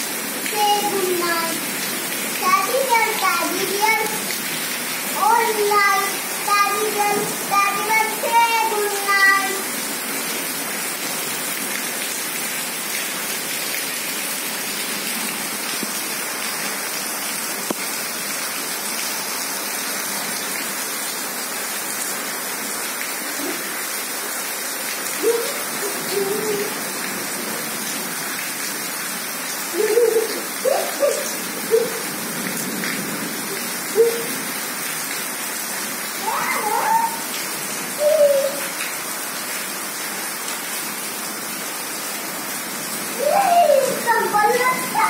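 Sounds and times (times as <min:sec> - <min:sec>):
heavy rain: 0:00.0 - 0:45.0
child's voice: 0:00.4 - 0:01.7, 0:02.4 - 0:04.3, 0:05.1 - 0:09.8, 0:25.2 - 0:26.8, 0:29.7 - 0:32.0, 0:33.5 - 0:34.4, 0:36.2 - 0:37.3, 0:38.0 - 0:38.7, 0:43.1 - 0:45.0.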